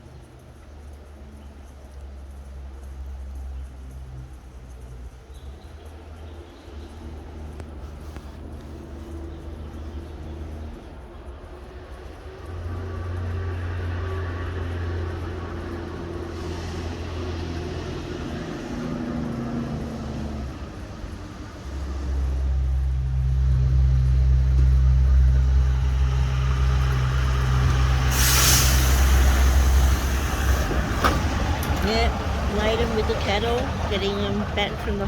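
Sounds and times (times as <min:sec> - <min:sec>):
truck diesel engine running: 0:06.0 - 0:35.0
short loud hiss: 0:28.0 - 0:31.2.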